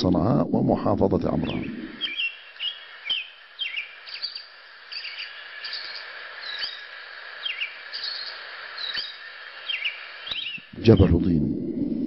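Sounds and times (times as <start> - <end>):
birds chirping: 0.0 - 11.9
background hiss: 0.0 - 12.0.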